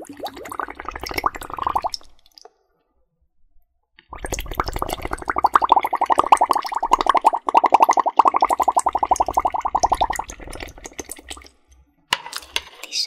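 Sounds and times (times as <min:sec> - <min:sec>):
bubbles blown through straw: 0:00.0 - 0:02.4, 0:04.1 - 0:11.5.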